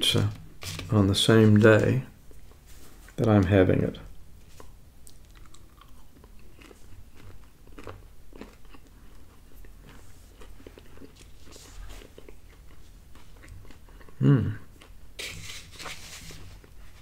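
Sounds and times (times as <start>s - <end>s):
person chewing pizza: 4.4s - 15.8s.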